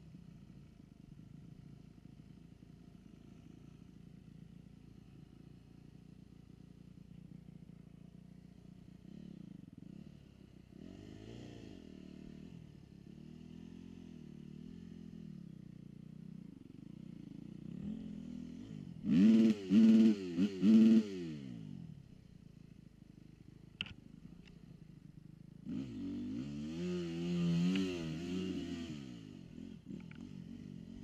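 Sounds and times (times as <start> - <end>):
dirt bike engines revving: 17.9 - 21.6, 25.6 - 31.0.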